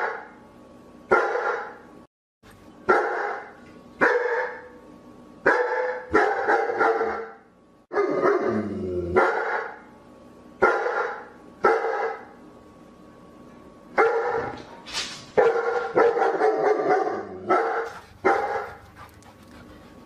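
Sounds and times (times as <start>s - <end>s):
dog barking: 0.0s - 0.3s, 1.1s - 1.8s, 2.9s - 4.7s, 5.5s - 8.5s, 9.2s - 9.8s, 10.6s - 12.3s, 14.0s - 14.6s, 15.4s - 18.8s.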